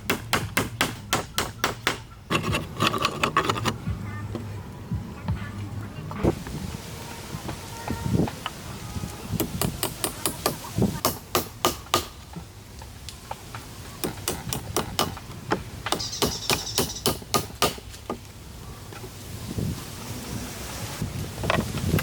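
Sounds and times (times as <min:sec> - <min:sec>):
hammer strikes: 0:00.0 - 0:03.7, 0:09.4 - 0:12.2, 0:14.0 - 0:15.2, 0:15.8 - 0:17.8.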